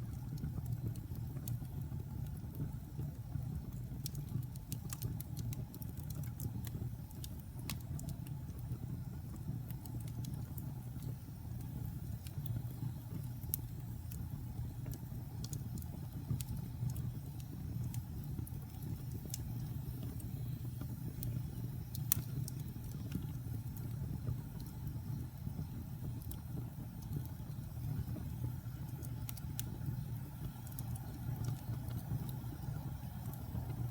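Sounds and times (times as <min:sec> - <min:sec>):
burning wood crackling and popping: 0:00.0 - 0:33.9
fire flames rumbling: 0:00.0 - 0:33.9.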